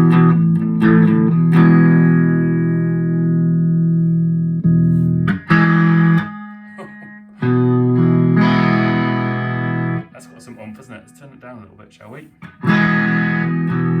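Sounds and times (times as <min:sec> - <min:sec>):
distorted electric guitar chords: 0:00.0 - 0:11.6, 0:12.4 - 0:14.0.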